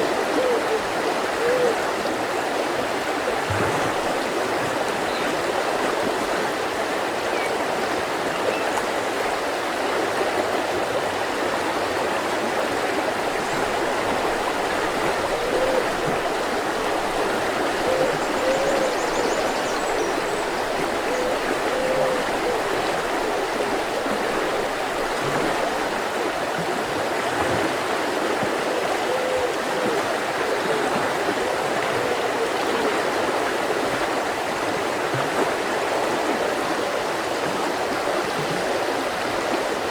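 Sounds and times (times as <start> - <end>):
water gurgles: 0.0 - 7.3
river flowing over stones: 0.0 - 39.9.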